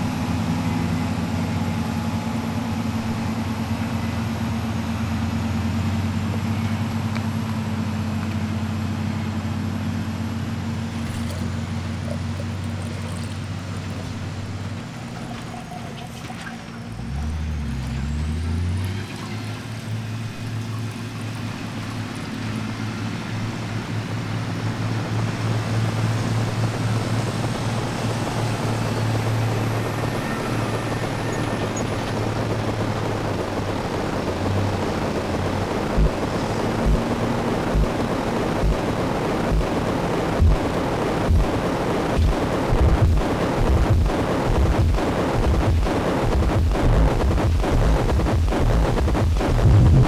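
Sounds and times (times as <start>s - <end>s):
low hum: 0.0s - 50.0s
steady rushing noise: 19.4s - 50.0s.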